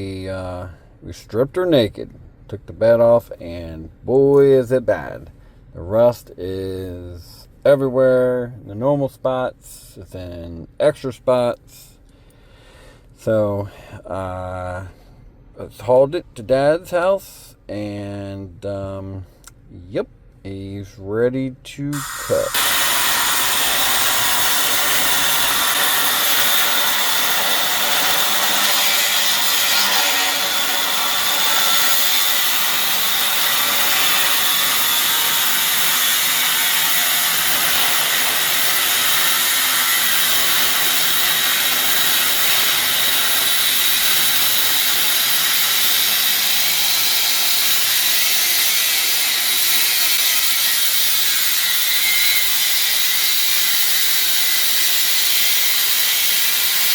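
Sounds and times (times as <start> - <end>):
power tool cutting steel: 22.0 - 56.9.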